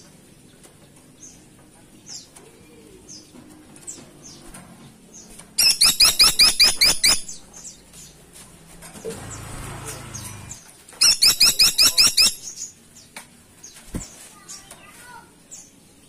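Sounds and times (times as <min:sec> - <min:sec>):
faint high chirps: 0:05.6 - 0:07.3, 0:11.0 - 0:12.6
woodpecker calling: 0:05.6 - 0:07.4, 0:10.5 - 0:12.7.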